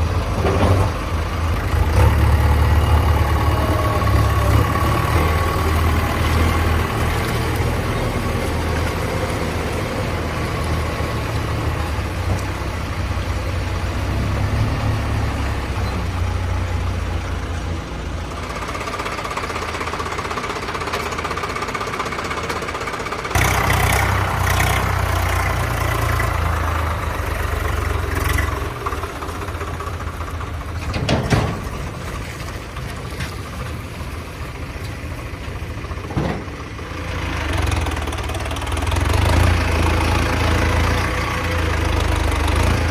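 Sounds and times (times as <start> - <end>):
tractor engine running: 0.0 - 42.9
sharp knocks and clatters: 30.8 - 31.9.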